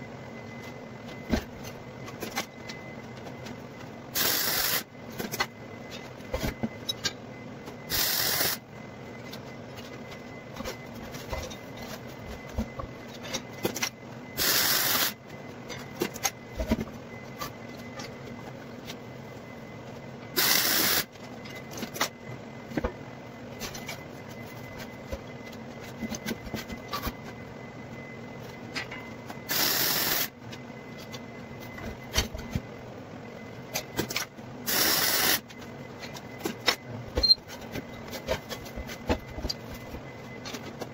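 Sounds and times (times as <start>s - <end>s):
steady background hum: 0.0s - 40.9s
electric arc welding crackle: 4.2s - 4.9s, 7.9s - 8.6s.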